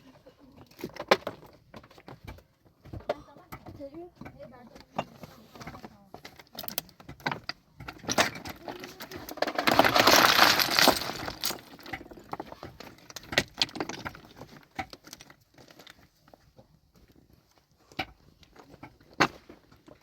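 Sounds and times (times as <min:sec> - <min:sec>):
hard objects knocking: 0:00.6 - 0:14.3
rattling clatter: 0:06.5 - 0:14.5.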